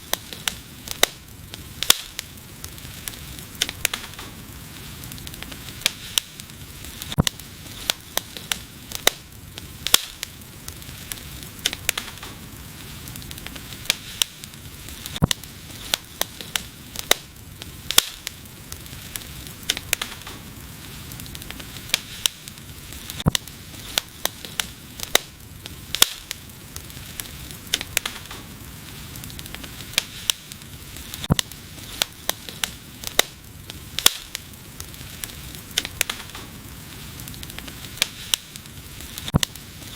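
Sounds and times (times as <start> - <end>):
fire crackling and popping: 0.0 - 39.9
wood fire hissing: 0.0 - 39.9.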